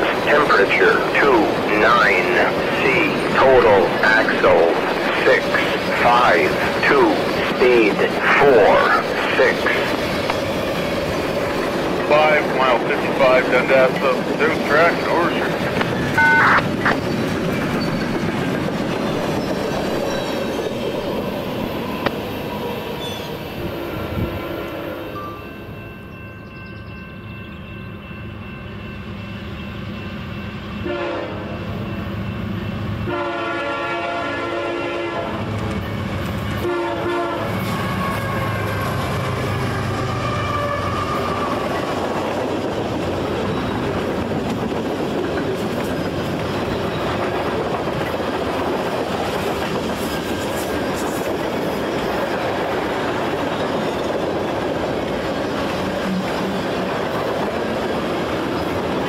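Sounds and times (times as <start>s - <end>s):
locomotive engine drone: 0.0s - 24.4s, 35.4s - 59.0s
train wheels clattering on rails: 9.0s - 23.4s, 37.4s - 59.0s
locomotive air horn blasts: 30.8s - 31.5s, 33.1s - 35.4s, 36.6s - 38.8s.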